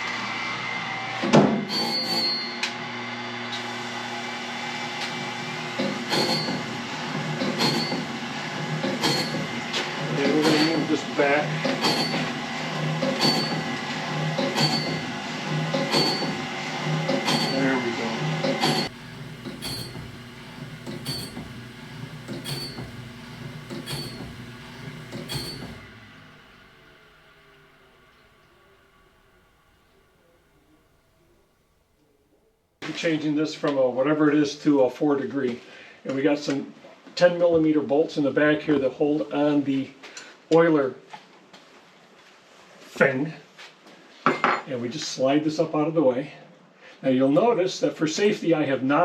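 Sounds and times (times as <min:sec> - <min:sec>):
grinding wheel squealing on blade: 0:00.8 - 0:04.0, 0:04.8 - 0:26.8
motor humming: 0:02.6 - 0:31.4.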